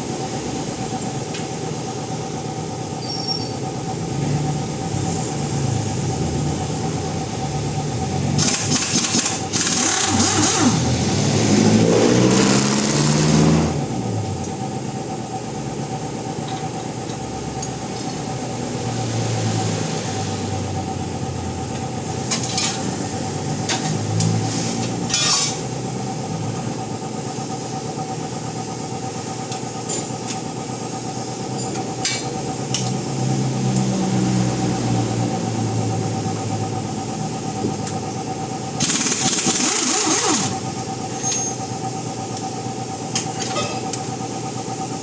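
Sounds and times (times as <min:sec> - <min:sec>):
car engine idling: 0:03.6 - 0:11.8, 0:12.6 - 0:24.2, 0:30.4 - 0:41.2.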